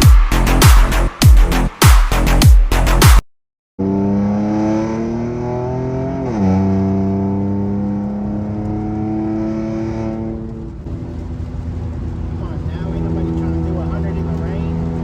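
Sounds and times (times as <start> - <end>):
car engine accelerating: 3.8 - 15.0.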